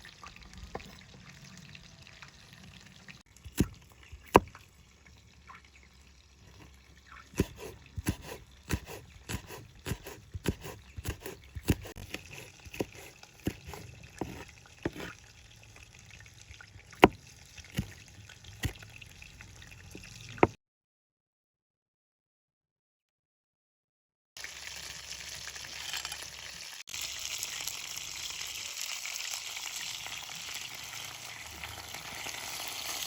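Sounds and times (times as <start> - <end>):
faint trickle of liquid: 0.0 - 7.4.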